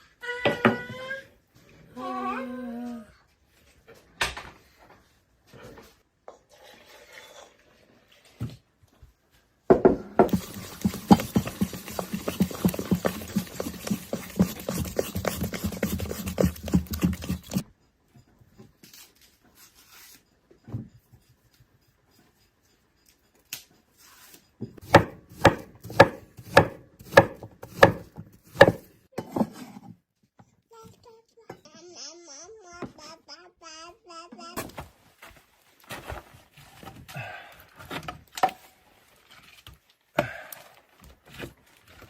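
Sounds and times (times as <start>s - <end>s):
knife chopping on wooden board: 9.8s - 17.6s, 24.8s - 29.5s.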